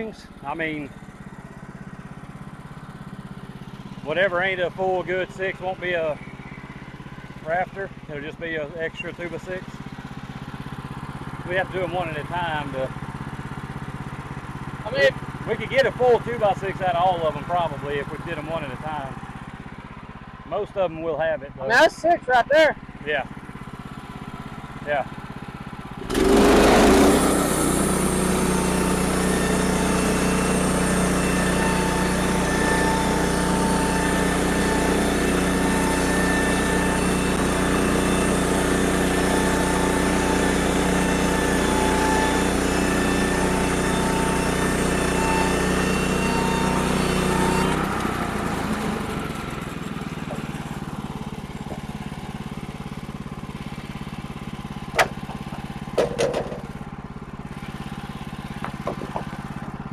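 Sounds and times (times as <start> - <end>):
sawmill blade cutting log: 4.0 - 6.2, 11.4 - 12.9, 14.8 - 19.2, 25.9 - 59.9.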